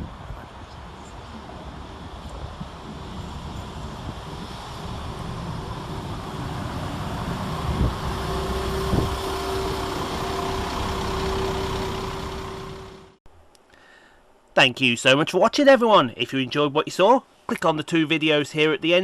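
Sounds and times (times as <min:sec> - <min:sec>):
constant hum: 0:00.0 - 0:13.7
diesel train rumble: 0:00.9 - 0:13.2.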